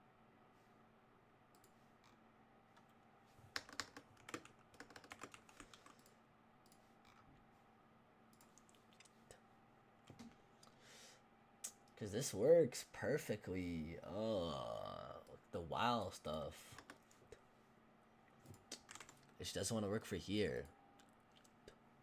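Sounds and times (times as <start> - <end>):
typing on computer keyboard: 3.5 - 6.1, 18.5 - 19.2.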